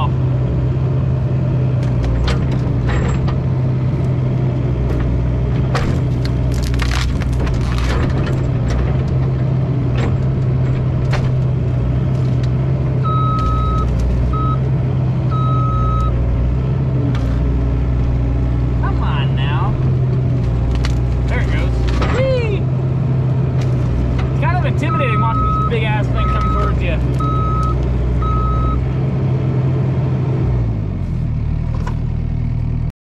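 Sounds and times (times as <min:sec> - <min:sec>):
excavator diesel engine running: 0:00.0 - 0:32.9
cracks and knocks of dragged tree: 0:04.8 - 0:12.6, 0:20.2 - 0:22.1
short steady beeps: 0:13.1 - 0:13.8, 0:15.3 - 0:16.1, 0:24.9 - 0:28.8.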